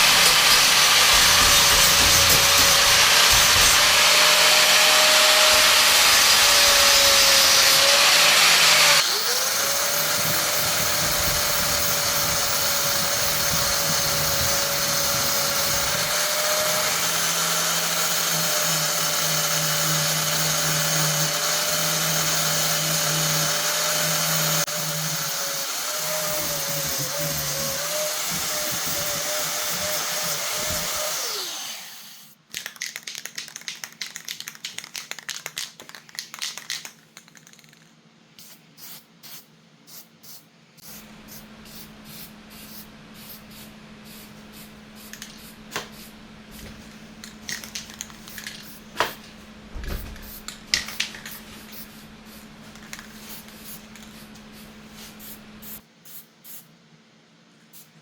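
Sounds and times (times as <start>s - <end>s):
electric power tool whining: 0.0s - 32.3s.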